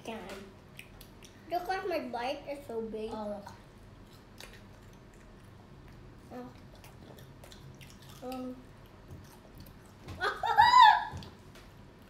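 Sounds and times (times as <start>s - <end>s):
children chewing: 0.3s - 1.7s, 3.3s - 10.4s
hummed mm sounds: 3.5s - 12.0s
child squealing: 10.2s - 11.2s.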